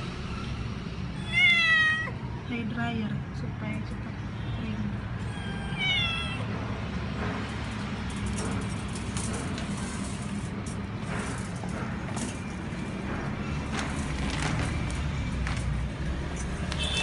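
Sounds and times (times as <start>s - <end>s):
cat meowing: 1.2s - 2.2s, 5.2s - 6.5s.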